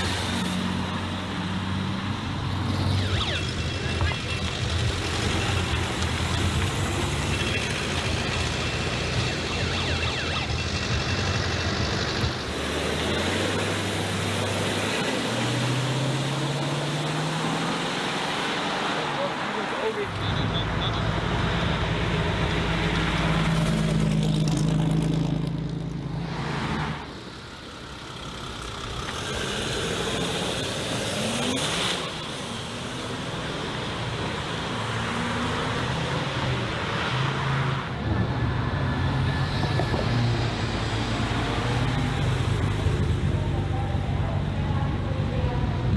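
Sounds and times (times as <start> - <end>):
car engine and exhaust running: 0.0 - 17.0.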